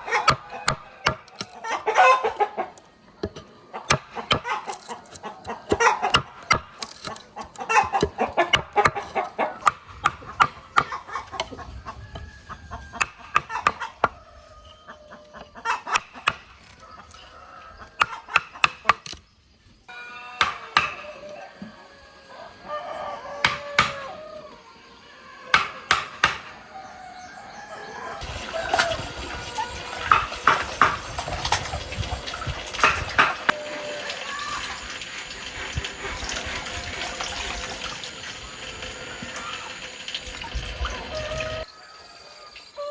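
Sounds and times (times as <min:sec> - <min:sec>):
rooster crowing: 0:00.0 - 0:02.7, 0:10.7 - 0:16.0, 0:16.7 - 0:18.3, 0:19.9 - 0:31.2, 0:31.8 - 0:34.8, 0:40.8 - 0:42.9
chickens clucking: 0:00.0 - 0:19.1, 0:20.2 - 0:42.9.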